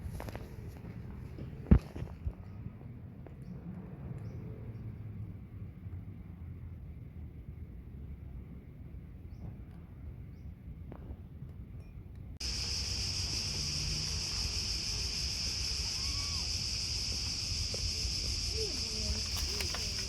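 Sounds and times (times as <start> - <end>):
insect chorus: 12.4 - 20.0
faint short sliding calls: 19.0 - 20.0.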